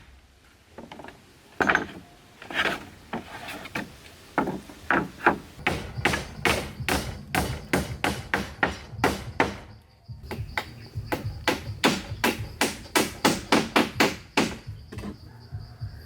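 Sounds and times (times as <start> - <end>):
tool striking wood: 3.8 - 9.7, 10.3 - 15.2.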